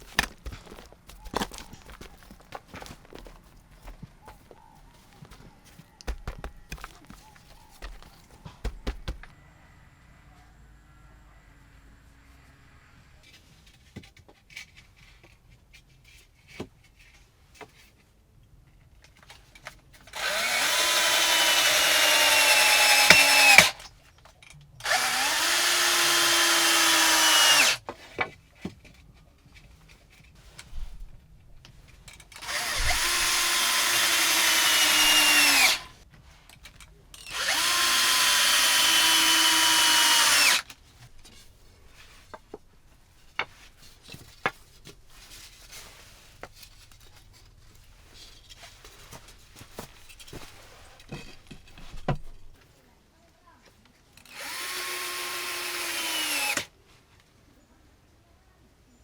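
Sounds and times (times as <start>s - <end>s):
handling knocks: 0.0s - 9.3s
electric drill spinning: 5.3s - 7.2s, 7.8s - 9.3s, 20.1s - 23.9s, 24.8s - 27.8s, 32.4s - 36.0s, 37.2s - 40.7s, 54.2s - 56.7s.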